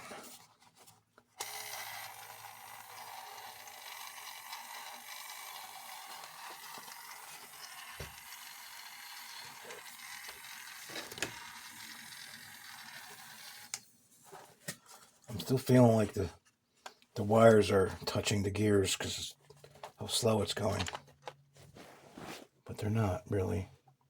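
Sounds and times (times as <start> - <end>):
toy motor whirring: 1.4 - 13.8.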